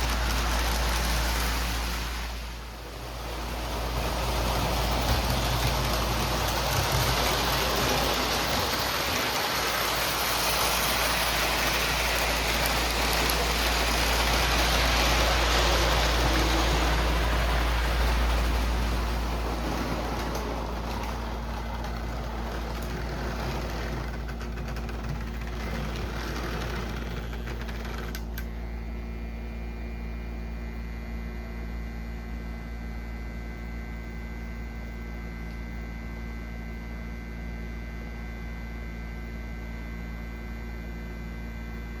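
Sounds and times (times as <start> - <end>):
model train rumbling: 0.0 - 28.5
low electrical hum: 0.0 - 42.0.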